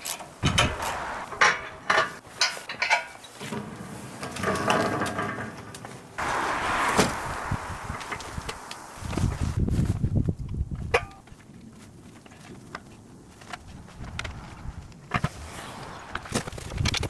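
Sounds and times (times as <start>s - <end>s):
metal scraping and rattling: 0.0s - 6.9s.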